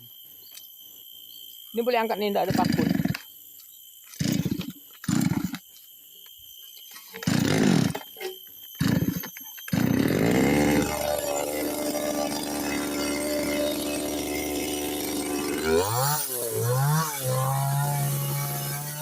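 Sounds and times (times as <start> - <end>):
two-stroke engine revving: 2.5 - 3.2, 4.2 - 5.6, 7.2 - 8.0, 8.8 - 19.0.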